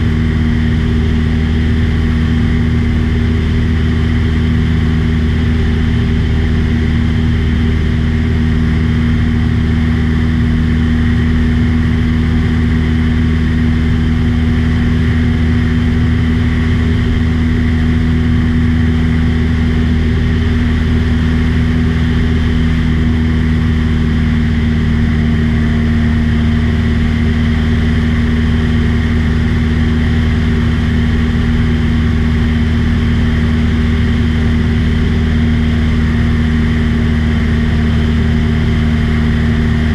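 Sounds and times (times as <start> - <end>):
small airplane engine droning: 0.0 - 39.9.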